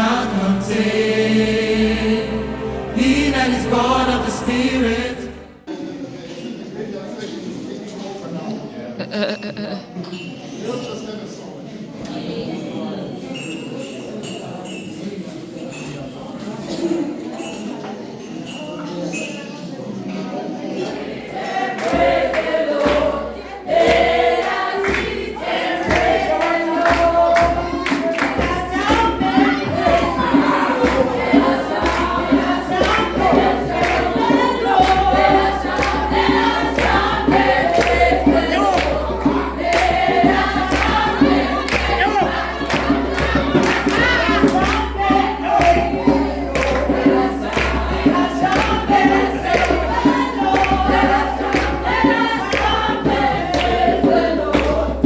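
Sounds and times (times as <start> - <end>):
group singing worship song: 0.0 - 5.7, 20.6 - 55.0
steady beat: 21.9 - 54.8.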